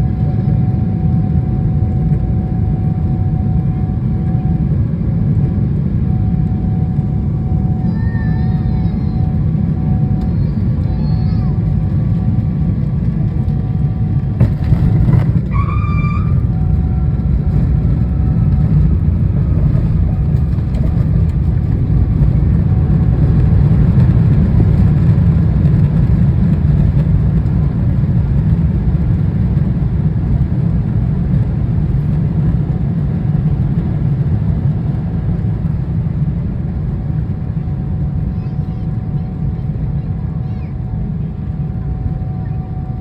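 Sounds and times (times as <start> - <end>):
low runway rumble: 0.0 - 43.0
tyre screech: 14.8 - 16.6.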